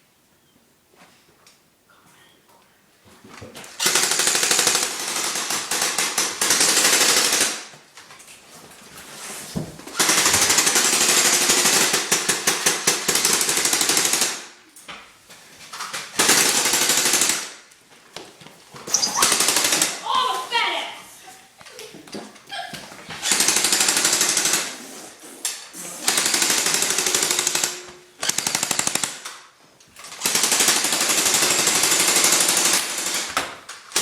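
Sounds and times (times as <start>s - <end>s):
airsoft gun firing bursts: 3.8s - 7.7s, 9.9s - 14.6s, 16.2s - 17.6s, 19.2s - 20.1s, 23.2s - 24.8s, 26.0s - 29.4s, 30.1s - 34.0s.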